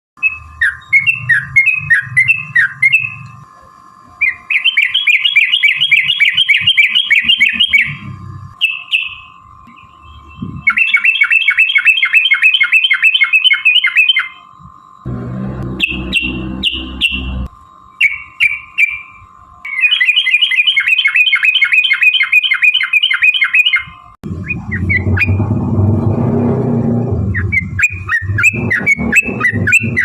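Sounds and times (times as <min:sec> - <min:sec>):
bird singing chattering song: 0:00.2 - 0:03.2, 0:04.2 - 0:14.5, 0:15.7 - 0:25.4, 0:27.3 - 0:30.0
low rumble: 0:15.0 - 0:17.5, 0:24.2 - 0:30.0.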